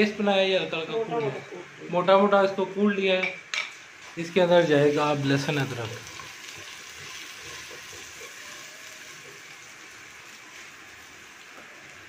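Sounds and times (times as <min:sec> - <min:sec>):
onion frying in ghee: 0:03.7 - 0:12.0.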